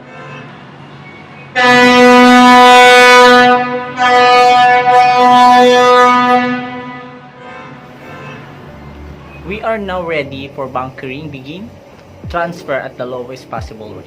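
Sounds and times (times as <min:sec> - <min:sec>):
ship's horn blasts: 0:00.0 - 0:09.6.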